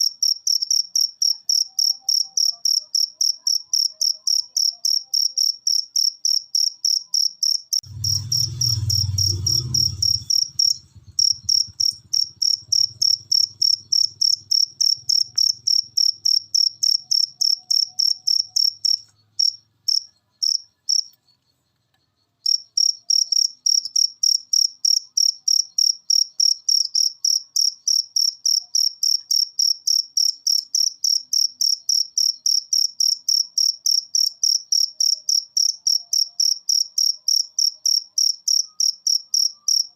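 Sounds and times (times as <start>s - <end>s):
cricket chirping: 0.0s - 39.9s
low rumble: 7.8s - 15.1s.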